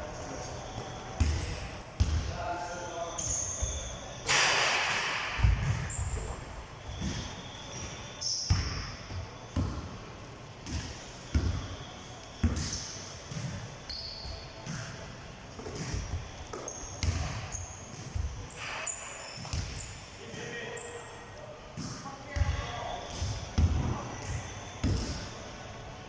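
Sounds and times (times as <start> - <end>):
shoe squeaks: 0.2 - 4.4, 5.6 - 9.6, 10.7 - 15.0, 15.6 - 21.2
basketballs bouncing on gym floor: 0.7 - 2.4, 3.2 - 15.0, 15.6 - 18.8, 19.4 - 20.0, 21.8 - 25.3.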